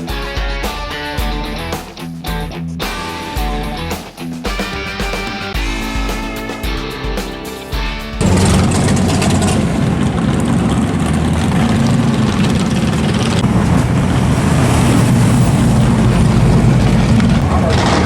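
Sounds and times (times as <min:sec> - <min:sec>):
car engine running steadily: 0:08.2 - 0:18.0.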